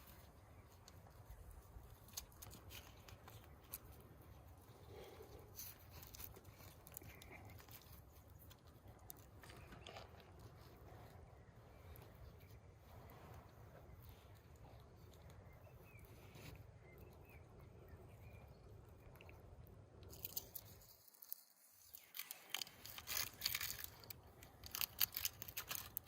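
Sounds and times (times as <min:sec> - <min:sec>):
charred skin crackling when peeled: 0:00.0 - 0:12.6, 0:19.0 - 0:26.0
faint outdoor hush: 0:00.0 - 0:25.9.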